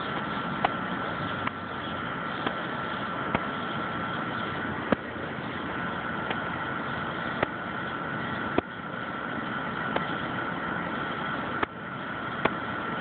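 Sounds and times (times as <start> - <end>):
steady engine-like hum: 0.0 - 13.0.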